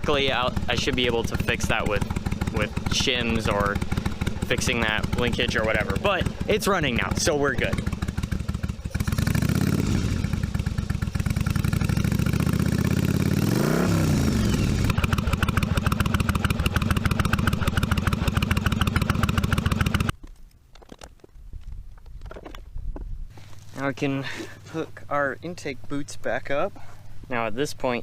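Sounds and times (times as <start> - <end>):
motorcycle engine revving: 0.0 - 20.1.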